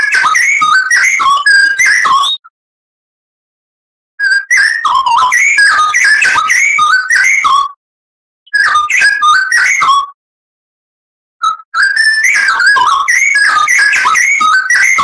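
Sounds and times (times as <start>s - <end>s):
bird singing whistled phrases: 0.0s - 2.5s, 4.2s - 7.7s, 8.5s - 10.1s, 11.4s - 15.0s.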